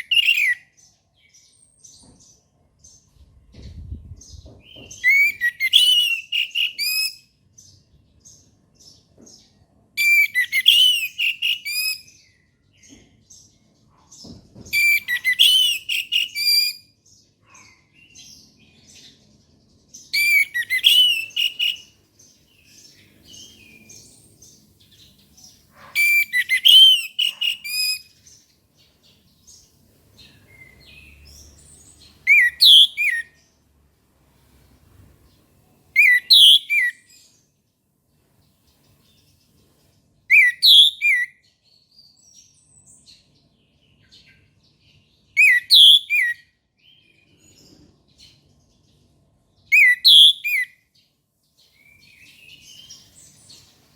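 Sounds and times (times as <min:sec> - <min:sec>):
soft bird twittering: 0:00.0 - 0:33.6, 0:34.6 - 0:37.6, 0:49.7 - 0:51.0.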